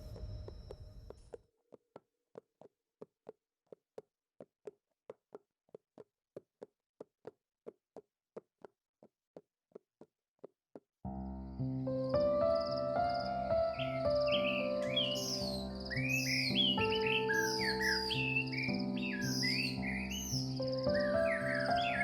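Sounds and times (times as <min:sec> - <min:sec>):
music: 0:11.1 - 0:22.0.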